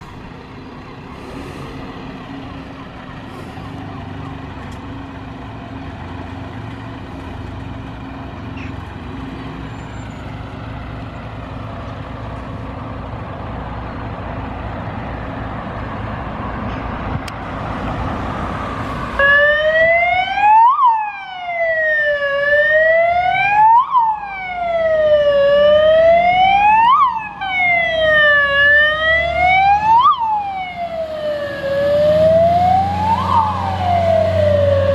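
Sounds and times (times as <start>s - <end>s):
truck engine rumbling: 0.0s - 34.9s
fire engine siren wailing: 0.8s - 5.2s, 17.6s - 34.9s.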